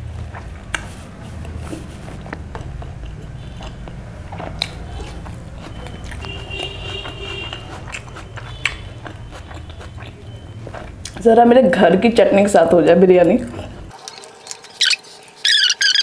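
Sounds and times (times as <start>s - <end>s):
chewing food: 0.2s - 11.3s, 13.4s - 16.0s
sharp mouth clicks: 7.4s - 10.2s.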